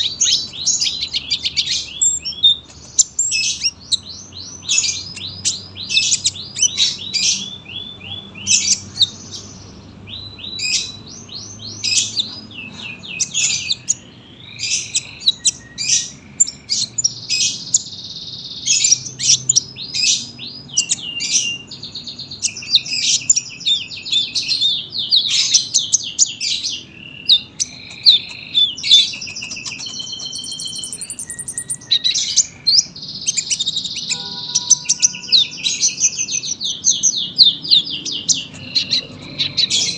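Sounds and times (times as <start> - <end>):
sunbird singing high chirps: 0.0 - 39.9.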